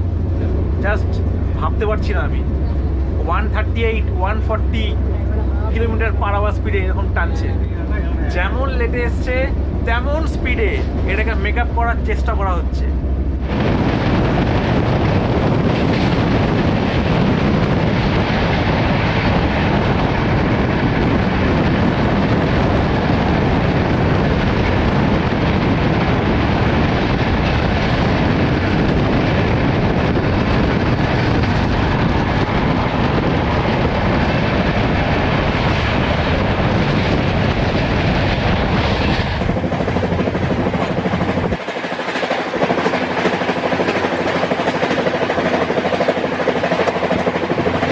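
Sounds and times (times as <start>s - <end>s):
passenger train running at high speed: 0.0s - 47.9s.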